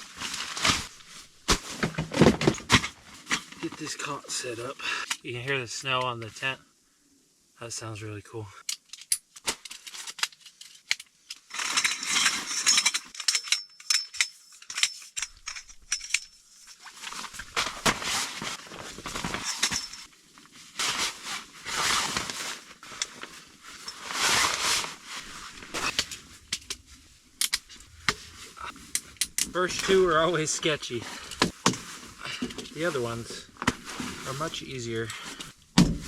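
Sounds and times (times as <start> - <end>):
fabric rustling: 0.0 - 4.1, 16.4 - 36.0
frame clicks and clinks: 8.7 - 16.4
snow ticking on tent fabric: 16.8 - 35.8.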